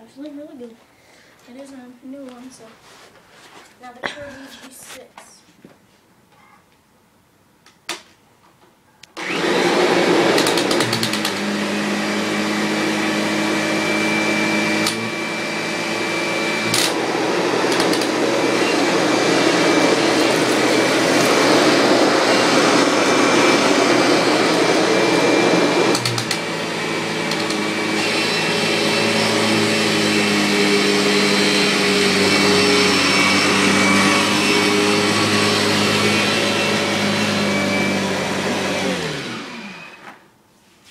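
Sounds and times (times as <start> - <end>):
upright vacuum cleaner running: 9.2 - 40.2.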